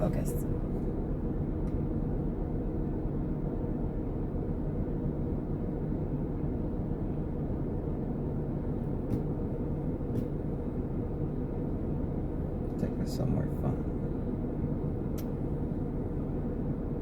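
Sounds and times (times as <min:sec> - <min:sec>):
car engine idling: 0:05.2 - 0:17.0.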